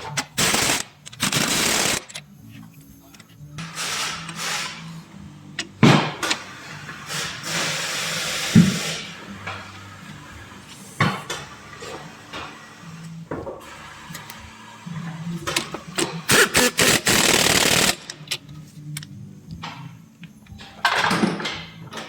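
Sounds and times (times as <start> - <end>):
loud noisy tool burst: 16.3 - 18.0.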